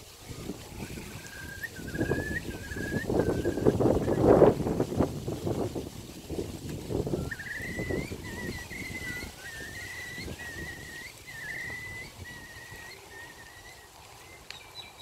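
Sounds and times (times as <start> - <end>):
wind buffeting microphone: 0.0 - 15.0
bird high wavering calls: 0.3 - 4.8, 6.9 - 15.0.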